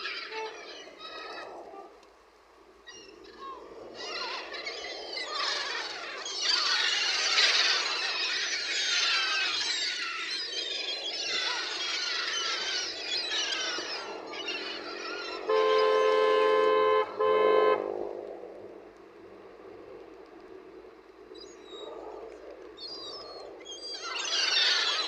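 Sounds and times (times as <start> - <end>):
horn blasts: 15.4 - 17.9.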